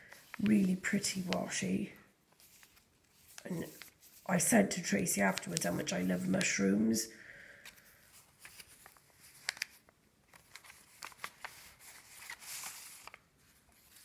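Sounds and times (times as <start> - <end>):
paper pages rustling: 0.0 - 6.7, 7.6 - 14.0
soft brushing rustle: 0.1 - 6.4.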